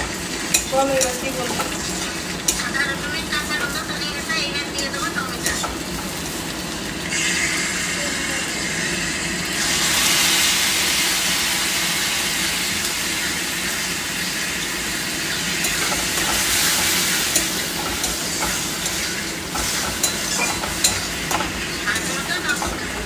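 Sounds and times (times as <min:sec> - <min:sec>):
sizzling in a wok: 0:00.0 - 0:23.0
metal spatula scraping a pan: 0:15.4 - 0:23.0.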